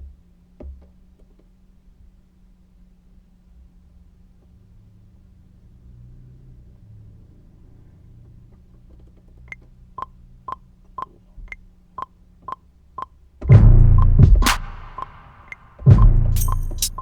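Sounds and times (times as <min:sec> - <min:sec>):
metronome clicking: 0:14.0 - 0:17.0.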